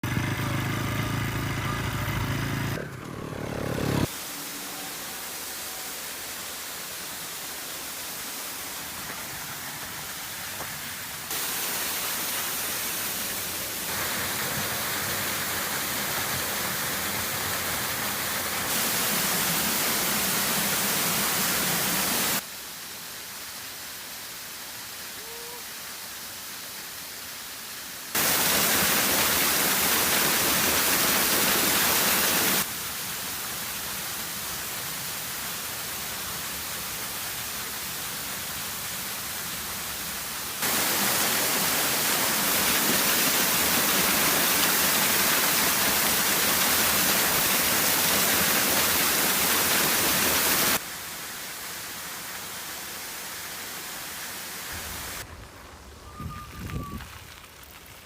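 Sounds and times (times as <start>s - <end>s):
motorcycle engine running: 0.0s - 4.1s.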